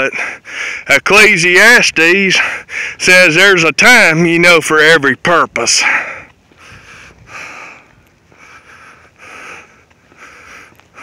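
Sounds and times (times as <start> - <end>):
man sniffling and breathing: 0.0 - 0.9, 2.4 - 3.0, 5.8 - 11.0.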